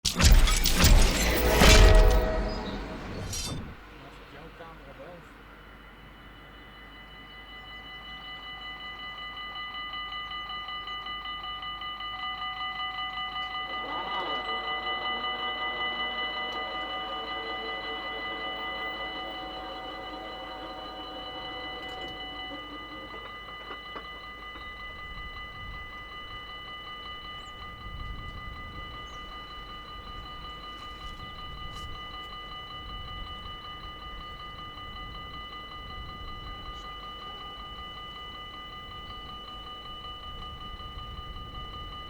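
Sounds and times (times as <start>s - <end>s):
low rumble: 0.0s - 4.3s
level-crossing warning bells ringing: 0.0s - 42.0s.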